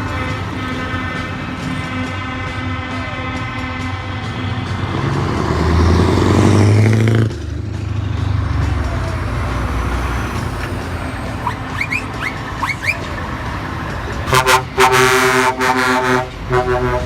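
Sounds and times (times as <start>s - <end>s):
truck engines running: 0.0s - 17.0s
short rising squeaks: 11.4s - 13.0s.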